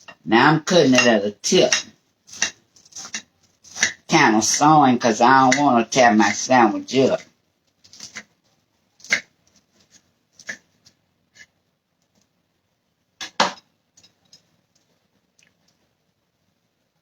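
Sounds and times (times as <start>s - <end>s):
knife sawing through sandwich: 2.3s - 3.9s.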